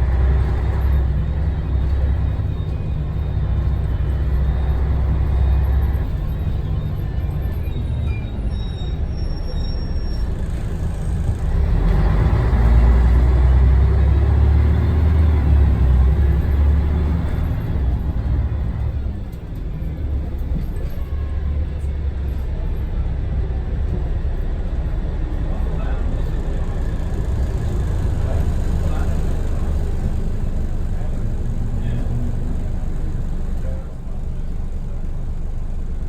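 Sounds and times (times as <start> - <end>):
diesel bus engine rumbling: 0.0 - 36.0.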